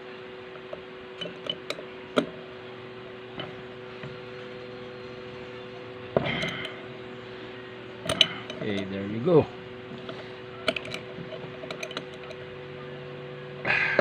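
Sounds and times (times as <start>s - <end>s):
steady low hum: 0.0s - 14.0s
metal parts and tools clinking: 0.6s - 2.5s, 6.2s - 6.9s, 8.0s - 9.2s, 9.9s - 12.5s.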